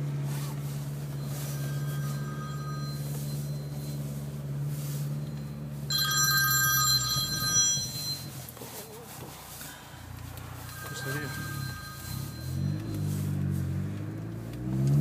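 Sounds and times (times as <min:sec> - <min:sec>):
car engine drone from cabin: 0:00.0 - 0:15.0
phone ringtone: 0:01.0 - 0:04.3, 0:05.1 - 0:08.5, 0:10.6 - 0:13.2.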